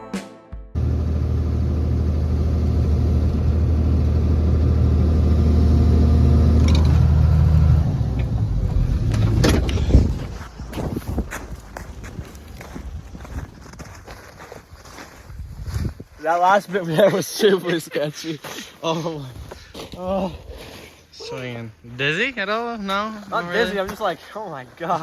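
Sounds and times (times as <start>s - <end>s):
diesel excavator engine running: 0.8s - 12.7s
knocks and clunks: 8.1s - 11.3s.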